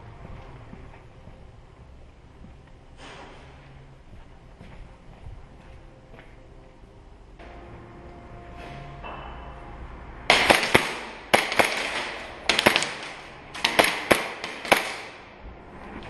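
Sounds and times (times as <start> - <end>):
airsoft pistol shots: 10.3 - 15.3.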